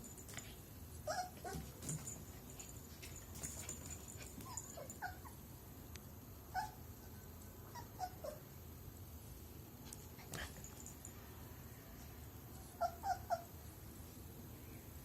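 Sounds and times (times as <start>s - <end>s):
dog whimpering: 7.7s - 8.4s, 12.8s - 13.5s.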